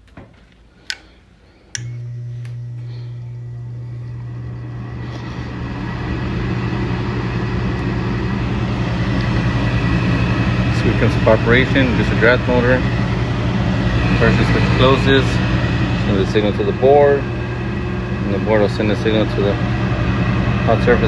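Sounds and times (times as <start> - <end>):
furnace motor humming: 0.0 - 21.0
sharp clicks: 1.7 - 2.6.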